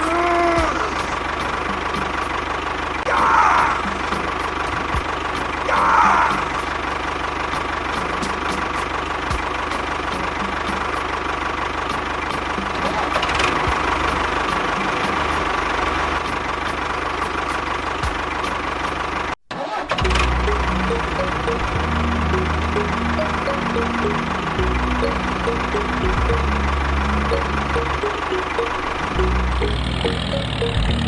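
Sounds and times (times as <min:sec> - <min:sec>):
motor squeal: 0:25.2 - 0:31.0.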